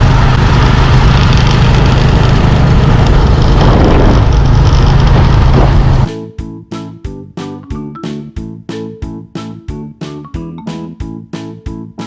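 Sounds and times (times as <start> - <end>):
loud rushing noise: 0.0 - 6.2
motorbike engine running: 0.0 - 6.2.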